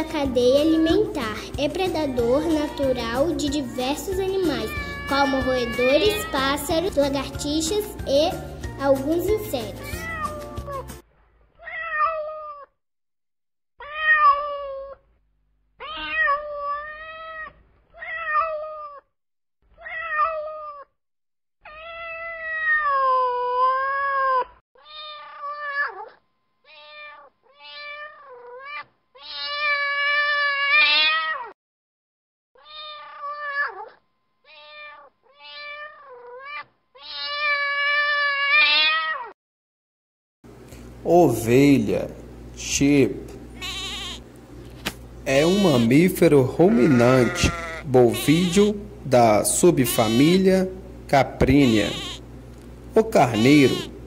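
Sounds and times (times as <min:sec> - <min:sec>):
cat meowing: 0:04.4 - 0:06.5, 0:09.8 - 0:11.0, 0:11.6 - 0:12.7, 0:13.8 - 0:15.1, 0:15.8 - 0:19.1, 0:19.7 - 0:20.9, 0:21.6 - 0:31.5, 0:32.6 - 0:39.3, 0:43.6 - 0:44.3, 0:46.7 - 0:48.7, 0:51.5 - 0:52.3, 0:53.4 - 0:53.9.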